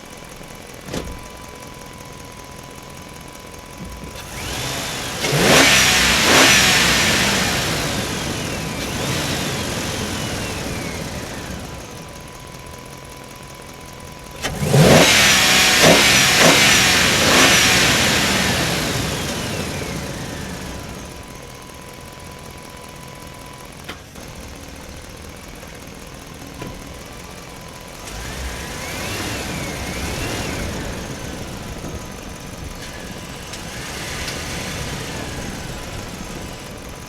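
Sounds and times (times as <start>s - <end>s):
engine revving: 4.0s - 12.6s, 14.2s - 21.8s, 26.6s - 37.0s.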